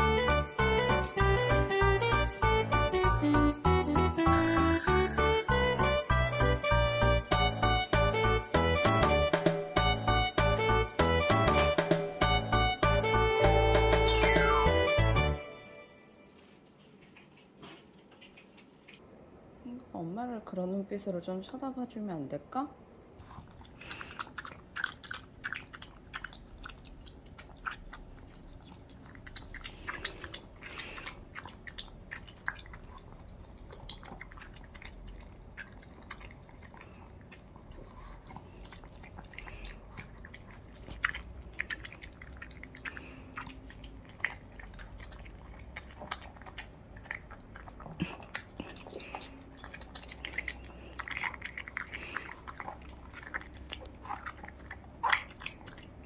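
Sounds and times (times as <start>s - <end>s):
dog chewing wetly: 23.2s - 56.0s.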